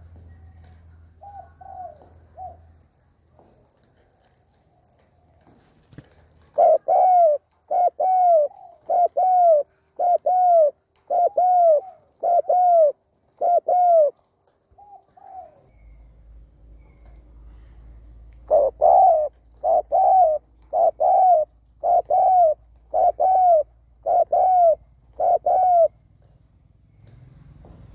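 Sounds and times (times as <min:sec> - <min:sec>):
dove cooing: 0:01.2 - 0:02.7, 0:06.4 - 0:14.2, 0:14.8 - 0:15.6, 0:18.5 - 0:26.0.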